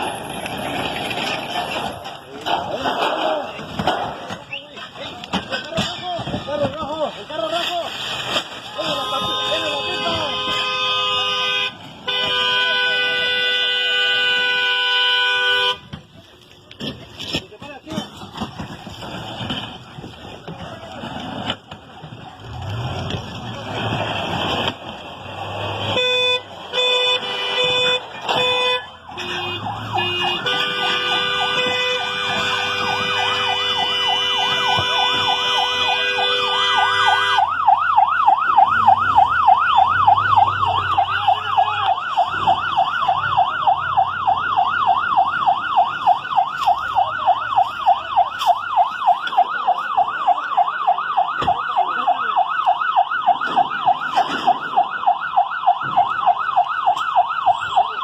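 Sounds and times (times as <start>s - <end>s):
siren horn blasts: 8.8s - 15.9s, 25.6s - 58.0s
yelp siren: 26.1s - 58.0s.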